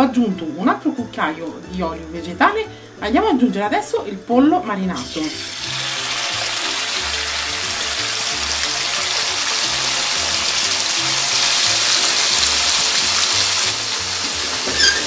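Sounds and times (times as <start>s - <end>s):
background music: 0.0s - 15.0s
chicken sizzling in oil: 5.0s - 15.0s.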